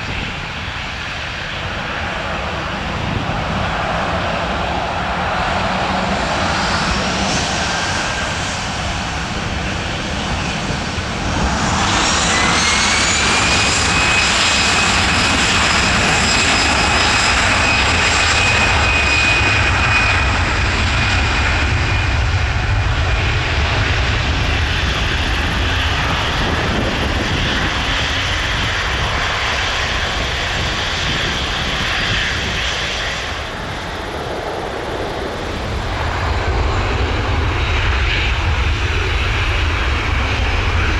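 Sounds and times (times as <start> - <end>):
jet engines spooling up: 24.4 - 40.9
high engine whine: 28.8 - 40.9.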